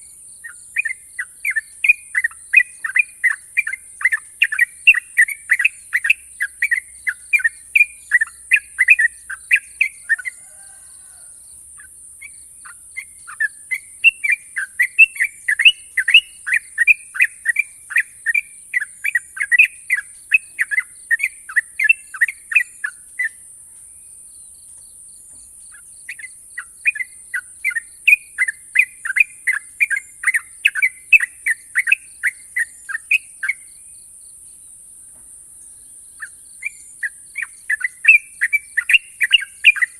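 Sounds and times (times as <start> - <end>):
bird singing rapid sharp notes: 0.0 - 10.4, 11.8 - 34.8, 35.7 - 39.9.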